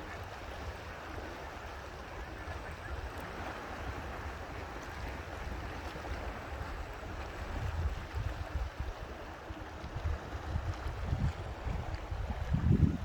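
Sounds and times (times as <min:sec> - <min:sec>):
water rushing: 0:00.0 - 0:13.0
wind buffeting microphone: 0:05.0 - 0:13.0.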